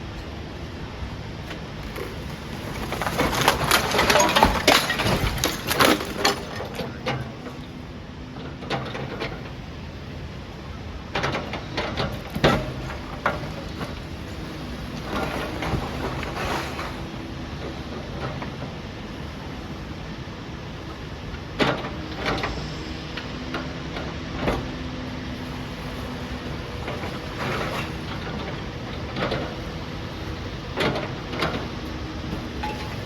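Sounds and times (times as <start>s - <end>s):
steady background noise: 0.0s - 33.0s
bricks and rubble clattering: 1.8s - 7.7s, 12.1s - 17.2s, 25.5s - 33.0s.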